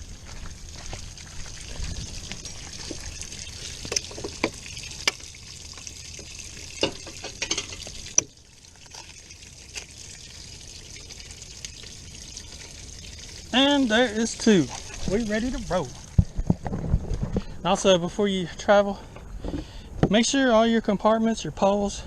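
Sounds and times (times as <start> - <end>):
water trickling and draining: 0.0 - 17.6.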